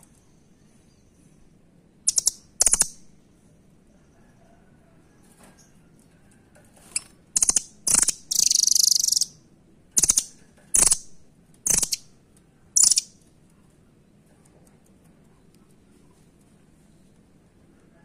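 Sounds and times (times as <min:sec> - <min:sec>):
bird high rattling trills: 0:02.1 - 0:03.0, 0:07.0 - 0:09.3, 0:11.7 - 0:12.0, 0:12.8 - 0:13.1.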